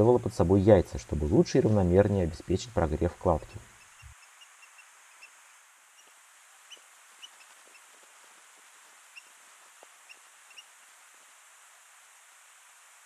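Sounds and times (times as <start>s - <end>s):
soft outdoor hiss: 0.0s - 13.0s
small bird chip calls: 3.6s - 8.1s, 9.0s - 10.8s.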